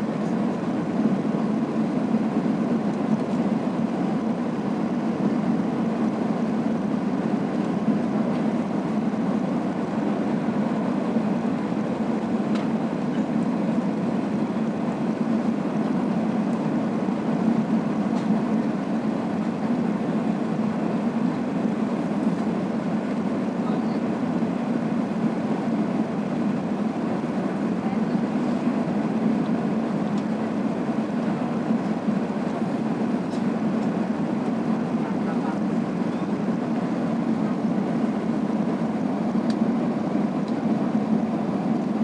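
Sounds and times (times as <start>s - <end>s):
airliner cabin rumble: 0.0s - 42.0s.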